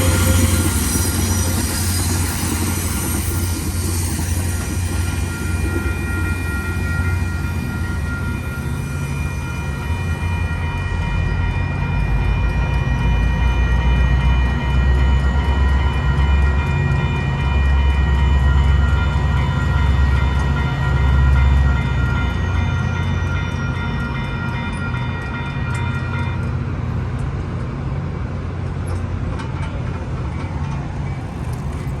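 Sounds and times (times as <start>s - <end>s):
steady high tones: 0.0s - 11.6s
train passing with heavy rumble: 0.0s - 32.0s.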